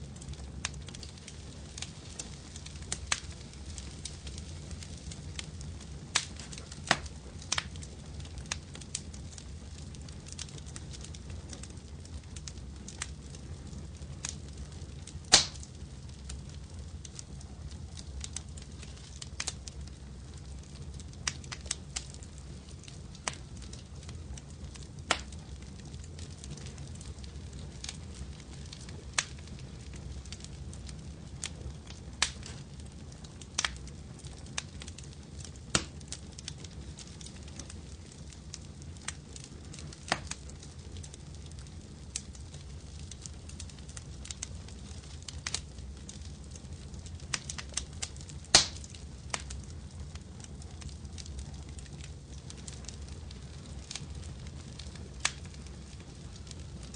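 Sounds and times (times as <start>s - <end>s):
low rumble of flames: 0.0s - 56.9s
wood fire crackling: 0.0s - 56.9s
sharp pops: 15.3s - 15.6s, 48.5s - 48.8s.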